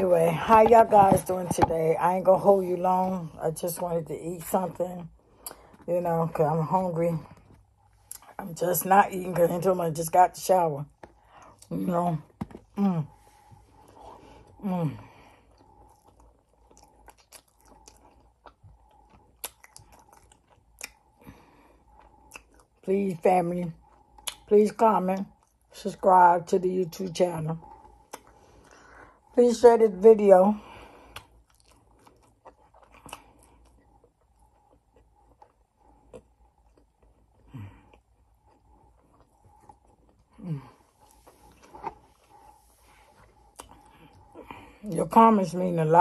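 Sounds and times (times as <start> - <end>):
person chewing food: 5.1 - 5.9, 7.2 - 8.4, 10.8 - 22.9, 23.7 - 24.5, 25.2 - 25.7, 27.5 - 29.3, 30.6 - 44.9
mouth clicks and smacks: 43.2 - 44.5.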